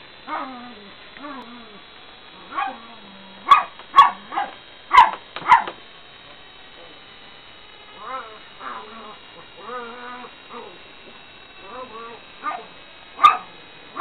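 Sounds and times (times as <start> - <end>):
dog barking: 3.5 - 5.8, 12.4 - 14.0.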